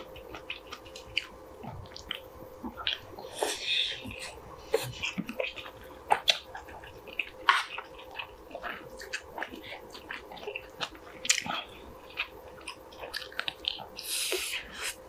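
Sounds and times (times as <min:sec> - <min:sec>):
chewing mouth clicks and smacks: 0:04.0 - 0:14.0.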